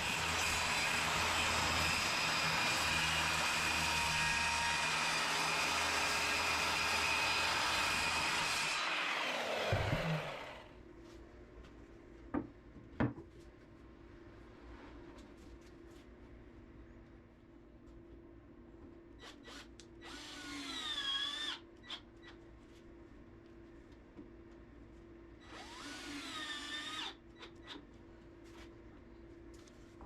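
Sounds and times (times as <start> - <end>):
power saw cutting plywood: 0.0 - 10.7
saw blade winding down: 6.6 - 10.7.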